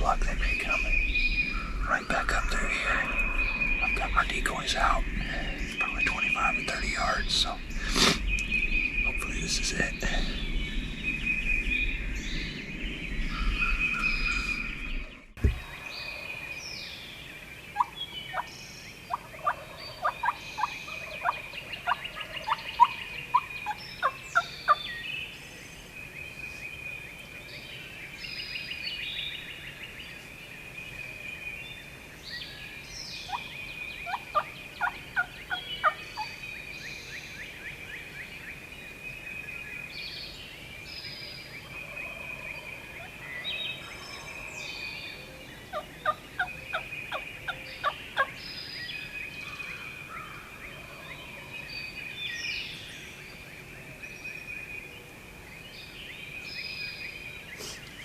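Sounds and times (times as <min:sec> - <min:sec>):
wild turkey calls: 0:00.0 - 0:08.2, 0:17.7 - 0:18.5, 0:19.1 - 0:24.8, 0:33.2 - 0:36.4, 0:41.6 - 0:48.5.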